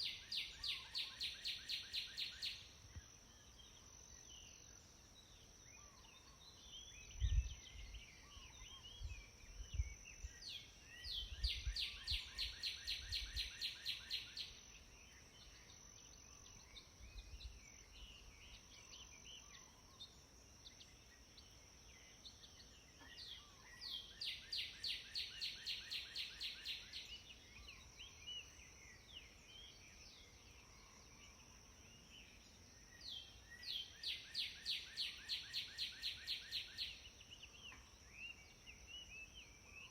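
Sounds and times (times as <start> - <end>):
birds chirping softly: 0.0 - 39.9.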